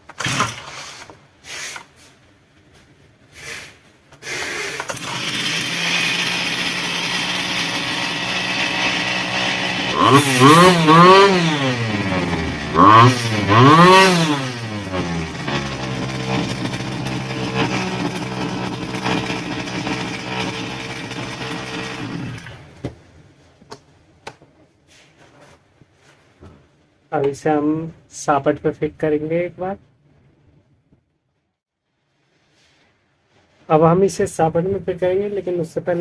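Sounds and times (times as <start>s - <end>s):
brush cutter engine revving: 0.1s - 1.1s, 4.8s - 22.8s.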